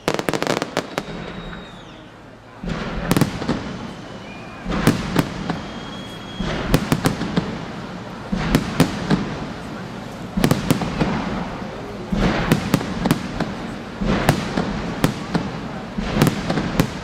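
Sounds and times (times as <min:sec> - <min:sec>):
whistles of rising shells: 0:00.0 - 0:02.3, 0:03.5 - 0:07.0
fireworks crackling reports: 0:00.0 - 0:17.0.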